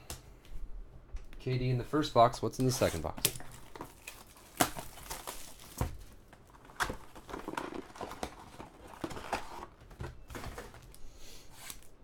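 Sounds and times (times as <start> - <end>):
packaging rustling: 2.6 - 12.0.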